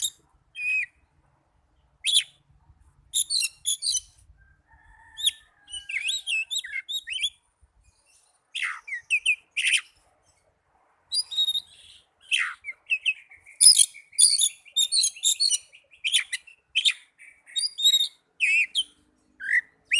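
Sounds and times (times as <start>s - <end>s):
magpie-robin singing whistles: 0.0s - 1.0s, 2.0s - 2.4s, 3.1s - 4.2s, 5.2s - 7.4s, 8.5s - 10.0s, 11.1s - 19.9s.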